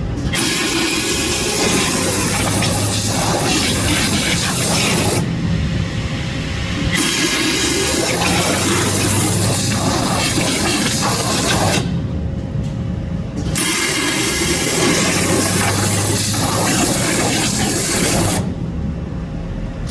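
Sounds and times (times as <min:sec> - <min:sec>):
low machine hum: 0:00.0 - 0:19.9
high-pressure water jet hissing: 0:00.3 - 0:05.3, 0:06.9 - 0:11.9, 0:13.6 - 0:18.5.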